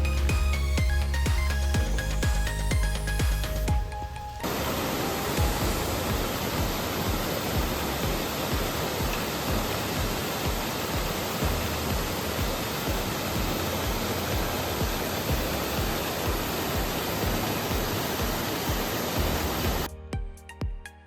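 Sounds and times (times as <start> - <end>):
waterfall rushing: 3.9 - 19.9.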